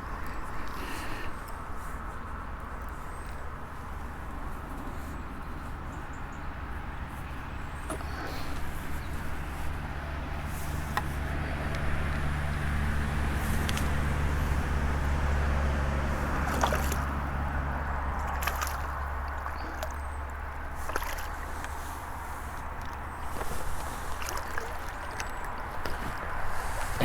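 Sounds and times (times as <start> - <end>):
water sloshing and dripping: 7.1 - 27.0.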